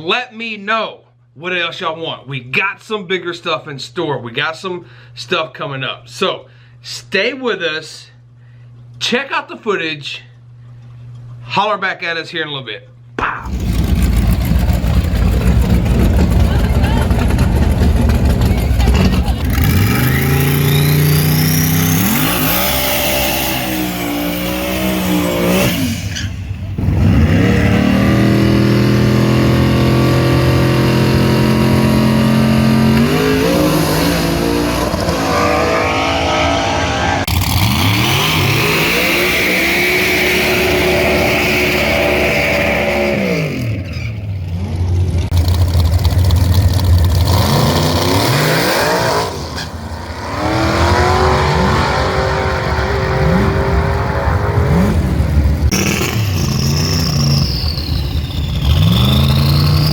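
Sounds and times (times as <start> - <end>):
truck engines revving at full throttle: 13.5 - 59.9.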